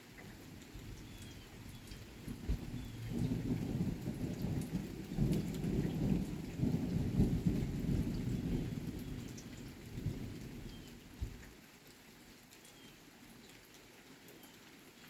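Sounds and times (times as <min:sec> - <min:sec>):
rain pattering: 0:00.0 - 0:15.0
thunder rumbling: 0:01.5 - 0:11.4.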